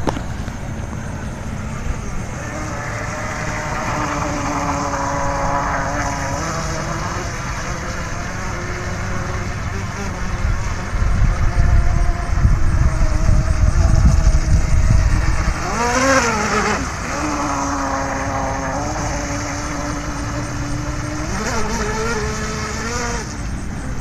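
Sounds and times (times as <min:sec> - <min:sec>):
electric motor whining: 0:00.0 - 0:24.0.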